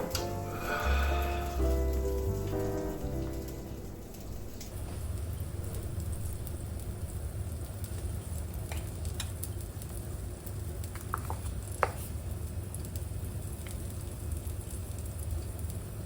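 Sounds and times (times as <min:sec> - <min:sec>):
range-hood fan humming: 0:00.0 - 0:07.5
skewers sizzling on a grill: 0:00.0 - 0:10.6.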